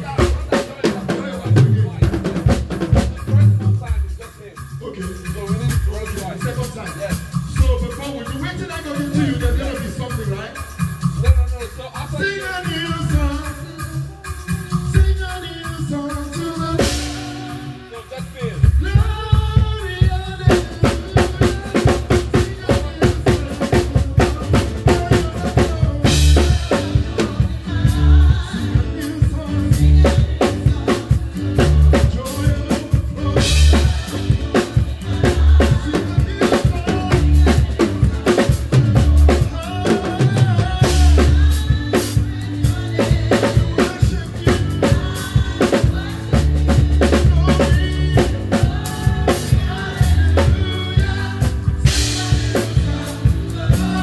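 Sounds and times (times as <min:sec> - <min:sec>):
kick and snare drum beat: 0:00.0 - 0:04.6, 0:18.5 - 0:54.0
live band playing: 0:00.0 - 0:54.0.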